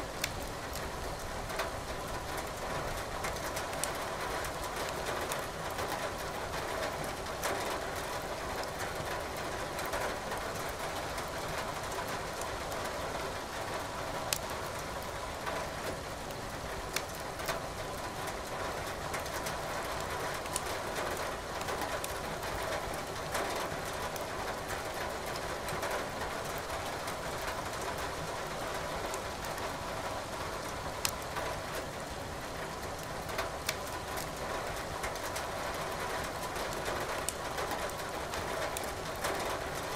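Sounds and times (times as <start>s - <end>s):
firewood popping and crackling: 33.6s - 34.3s.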